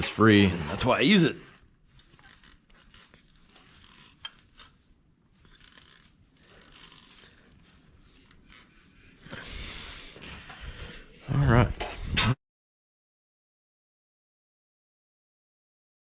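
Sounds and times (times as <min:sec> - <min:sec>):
rustling: 0:00.6 - 0:12.0.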